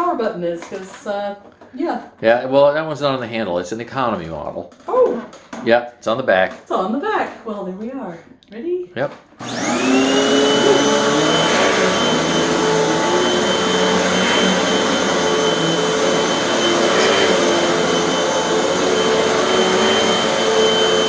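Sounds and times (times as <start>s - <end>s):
vacuum cleaner running: 9.4s - 21.0s.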